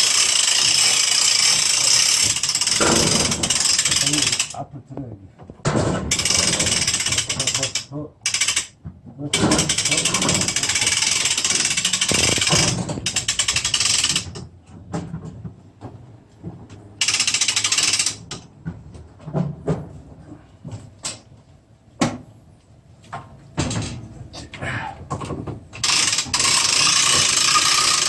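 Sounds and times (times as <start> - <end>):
hand winch ratcheting: 0.0 - 4.6, 6.1 - 8.8, 9.4 - 14.5, 17.0 - 18.5, 25.8 - 28.0
metal clanks and knocks: 2.7 - 3.8, 5.5 - 7.6, 23.2 - 25.8.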